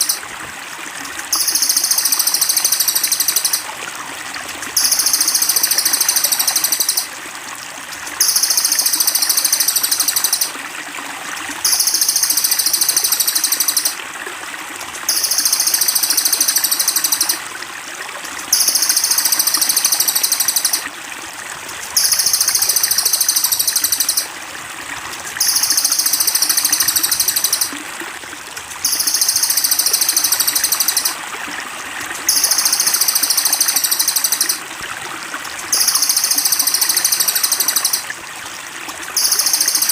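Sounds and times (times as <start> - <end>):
high rapid bird trill: 0.0 - 0.2, 1.3 - 3.6, 4.8 - 7.1, 8.2 - 10.5, 11.6 - 14.0, 15.1 - 17.4, 18.5 - 20.8, 22.0 - 24.3, 25.4 - 27.7, 28.8 - 31.2, 32.3 - 34.6, 35.7 - 38.1
trickling water: 0.0 - 39.9.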